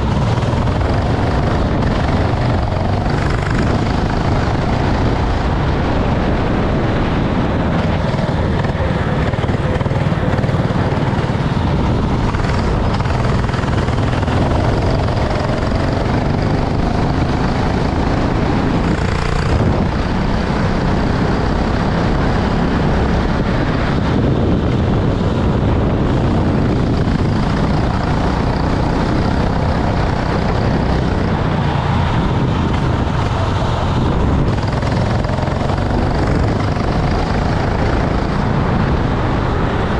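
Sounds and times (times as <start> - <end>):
kart engine running: 0.0 - 39.9.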